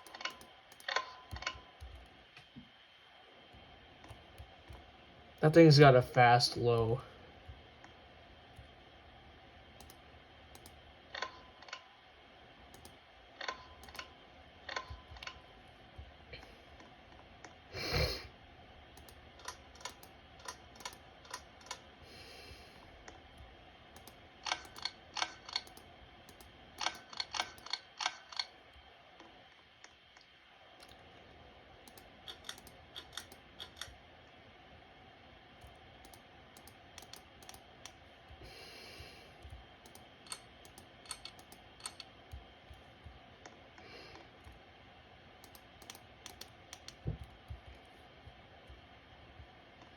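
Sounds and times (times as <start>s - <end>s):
ceiling fans running: 0.0s - 49.9s
sharp clicks and ticks: 19.0s - 21.8s, 23.1s - 28.5s, 31.8s - 34.0s, 35.6s - 38.4s, 39.4s - 43.2s, 45.4s - 47.9s.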